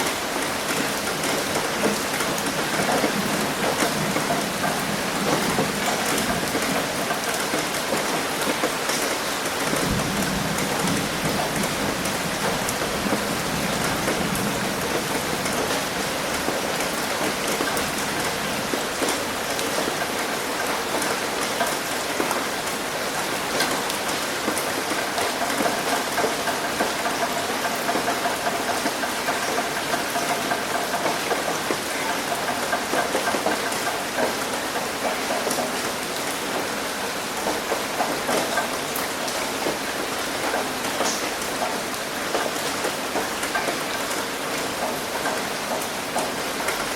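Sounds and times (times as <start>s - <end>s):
rain hitting a roof: 0.0s - 46.9s.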